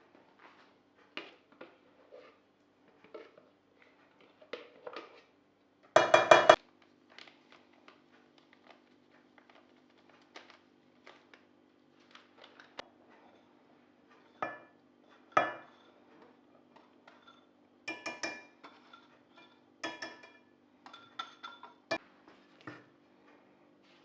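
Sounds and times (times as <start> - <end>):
dishes and cutlery clinking: 6.0 - 6.6, 14.2 - 22.0.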